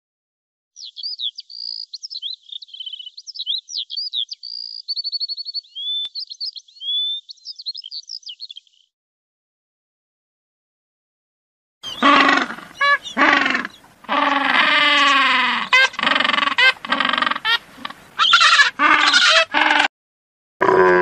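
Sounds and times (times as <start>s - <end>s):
songbird singing: 0.8s - 8.9s, 11.8s - 19.8s.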